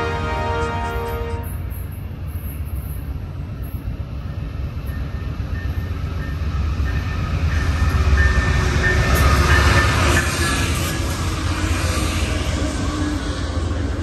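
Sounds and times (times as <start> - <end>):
train rumbling on rails: 0.0 - 14.0.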